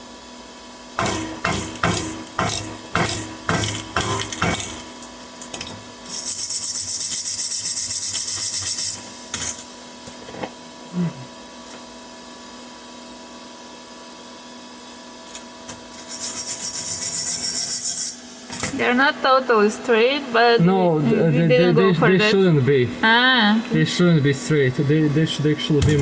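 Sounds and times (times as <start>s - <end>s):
hand tool rasping on steel: 6.1s - 9.0s, 15.9s - 18.2s.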